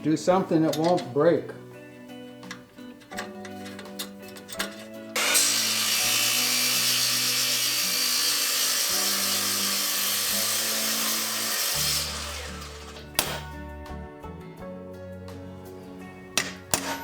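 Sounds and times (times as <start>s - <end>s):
power tool high-pitched hiss: 5.2s - 13.1s.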